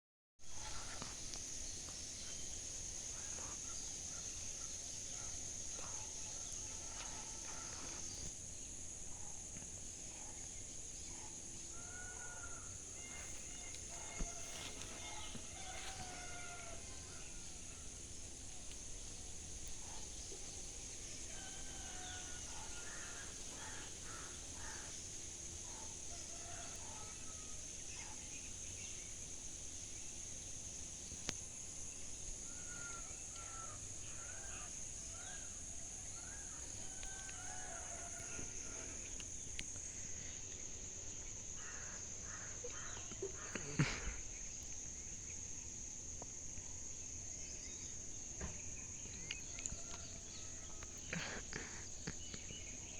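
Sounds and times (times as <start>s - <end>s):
high-pitched insect drone: 11.2s - 40.5s.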